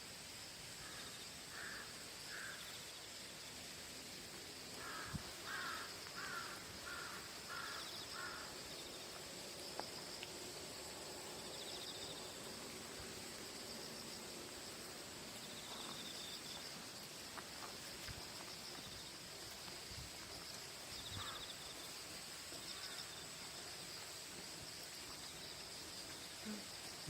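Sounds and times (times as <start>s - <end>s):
crow cawing: 0.8s - 2.6s, 4.8s - 8.5s, 21.2s - 21.4s.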